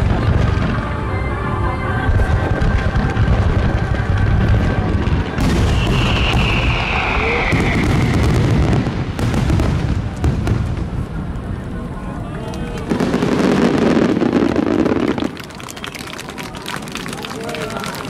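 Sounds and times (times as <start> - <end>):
descending firework whistle: 0.4 - 10.4
rapid firework crackling: 2.1 - 18.0
firework shells booming: 2.6 - 11.2.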